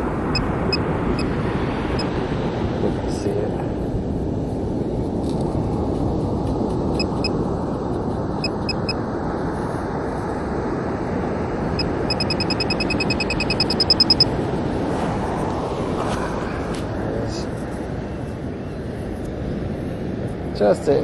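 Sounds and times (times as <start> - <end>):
wind noise: 0.0 - 21.0
metal detector beeping: 7.0 - 7.4, 8.4 - 9.0, 11.8 - 14.3.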